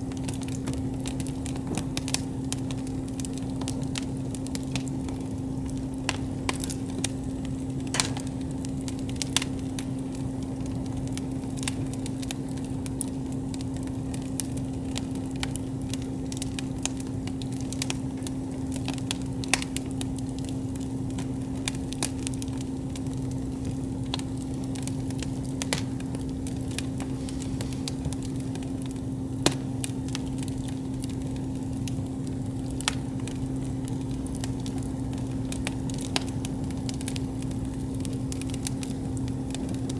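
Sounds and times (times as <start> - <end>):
wood campfire crackling: 0.0 - 39.9.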